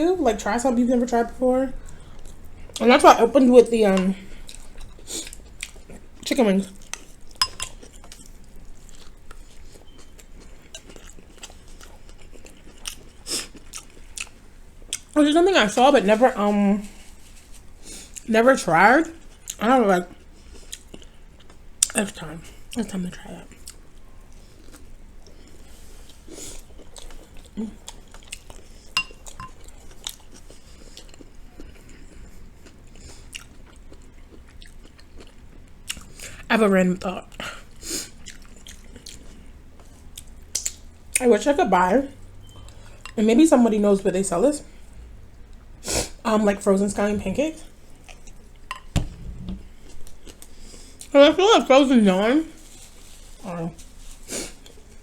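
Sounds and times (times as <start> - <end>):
person chewing: 4.0 - 15.2, 19.2 - 22.0, 23.5 - 36.4, 37.3 - 40.8, 48.0 - 51.1.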